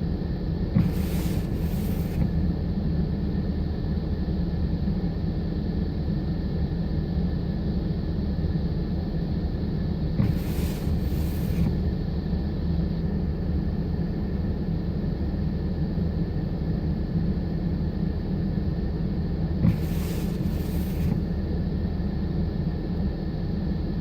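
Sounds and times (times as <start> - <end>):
short bursts of hiss: 0.8 - 2.4, 10.2 - 12.0, 19.6 - 21.4.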